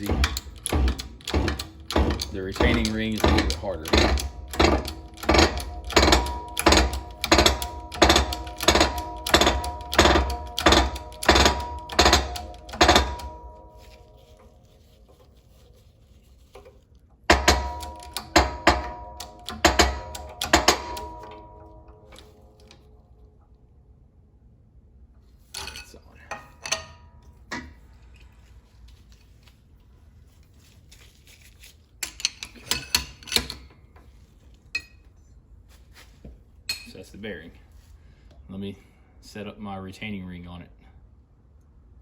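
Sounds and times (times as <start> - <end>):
steel parts clanking: 0.0 - 15.8, 16.4 - 23.0, 25.5 - 28.4, 32.0 - 34.0.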